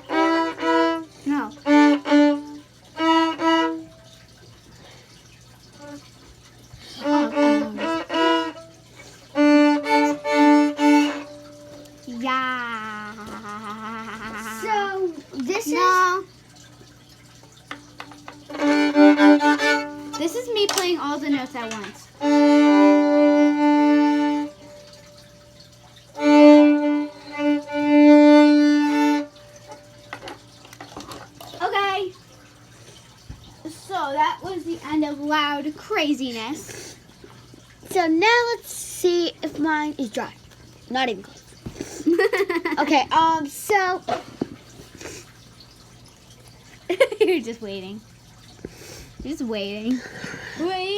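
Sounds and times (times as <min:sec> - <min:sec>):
violin played haltingly: 0:00.0 - 0:04.0, 0:06.9 - 0:12.1, 0:12.8 - 0:14.8, 0:18.4 - 0:20.2, 0:22.2 - 0:25.4, 0:26.1 - 0:29.9.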